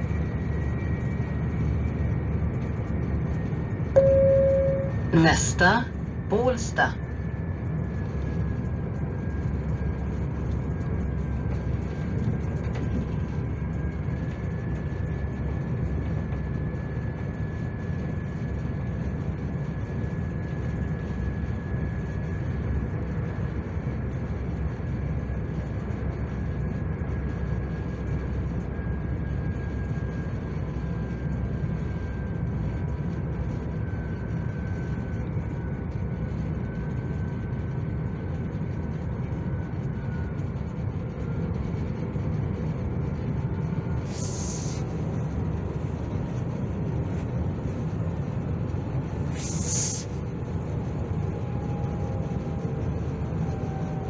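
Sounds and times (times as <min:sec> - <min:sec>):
train carriage rumble: 0:00.0 - 0:21.2, 0:32.5 - 0:54.0
faint high whine: 0:00.0 - 0:54.0.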